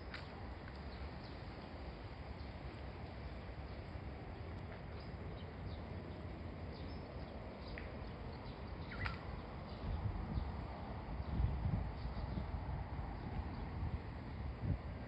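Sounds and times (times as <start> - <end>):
steady low rumble: 0.0 - 15.0
faint bird chirps: 6.7 - 10.5.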